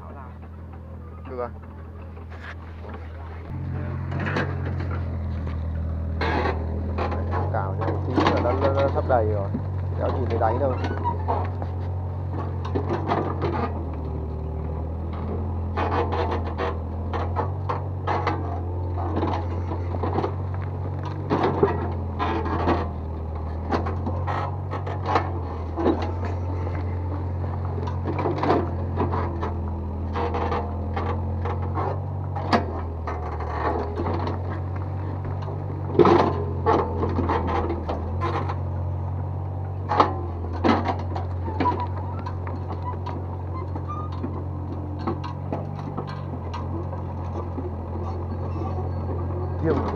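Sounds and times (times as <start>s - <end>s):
bucket clanking and scraping: 0.0s - 49.9s
excavator diesel engine: 0.0s - 49.9s.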